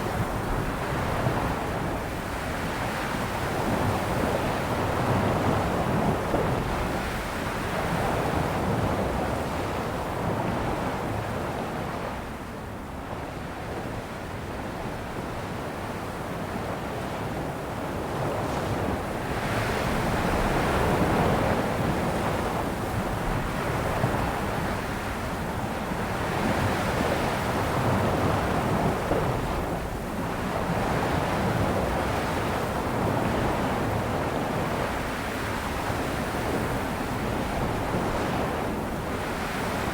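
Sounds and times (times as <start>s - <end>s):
ocean waves washing onto shore: 15.3s - 39.9s.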